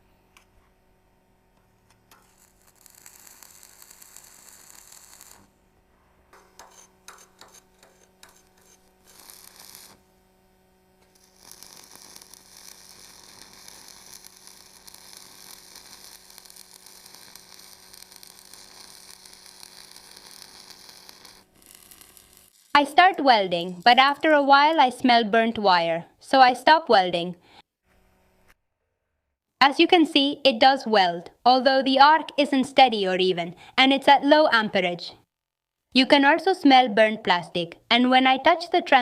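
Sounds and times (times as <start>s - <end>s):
welding arc crackling and hissing: 1.7s - 5.6s, 6.3s - 10.2s, 11.0s - 25.0s.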